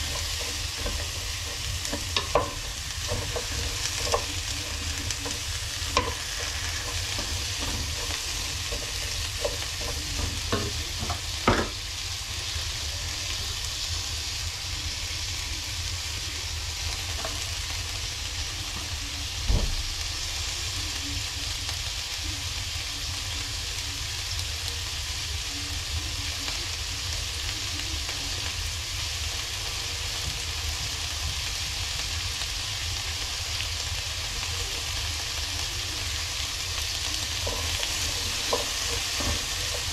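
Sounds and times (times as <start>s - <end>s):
utensil knocking against pan: 0.0s - 11.8s
vegetables sizzling in a pan: 0.0s - 39.9s.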